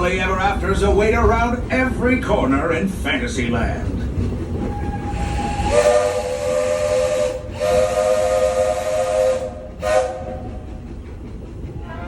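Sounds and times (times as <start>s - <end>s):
steam locomotive whistle: 4.7s - 10.6s
steam hiss: 5.0s - 10.8s.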